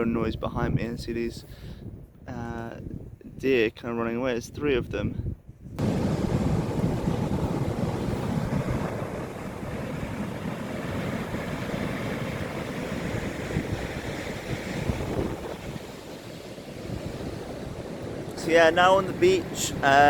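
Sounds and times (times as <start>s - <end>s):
wind buffeting microphone: 0.0s - 20.0s
ocean surf: 5.8s - 20.0s.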